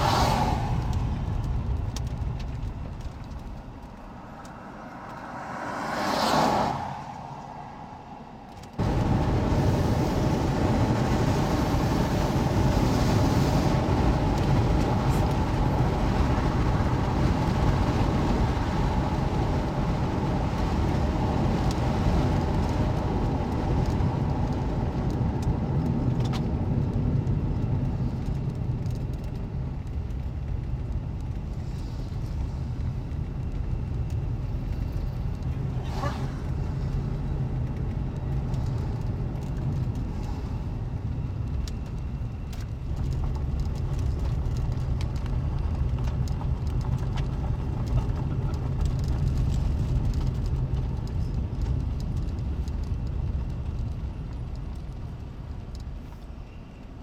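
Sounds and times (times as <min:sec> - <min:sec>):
vehicle passing by: 0:00.0 - 0:02.2, 0:03.4 - 0:13.8, 0:35.6 - 0:37.2
loud steady rumbling: 0:00.0 - 0:05.4, 0:06.8 - 0:56.0.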